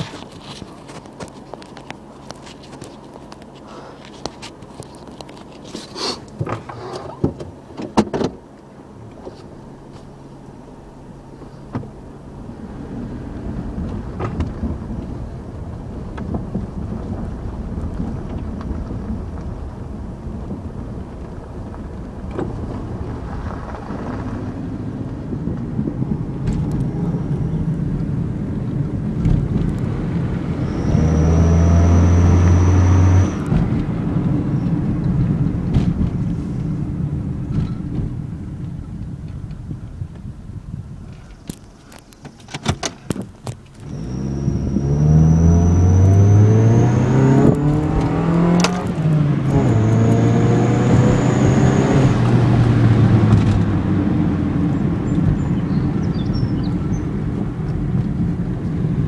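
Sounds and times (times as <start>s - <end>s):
car engine revving: 8.8s - 39.2s, 43.8s - 59.0s
thin high exhaust whistle: 30.6s - 33.4s.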